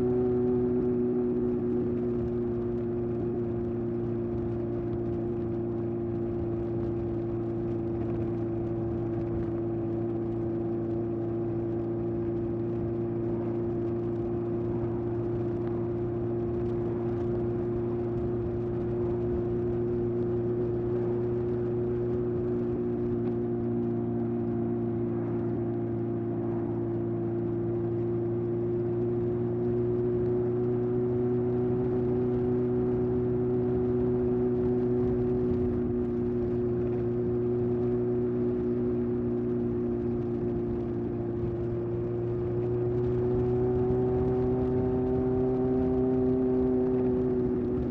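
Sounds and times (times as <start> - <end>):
motorcycle engine cruising: 0.0 - 47.9.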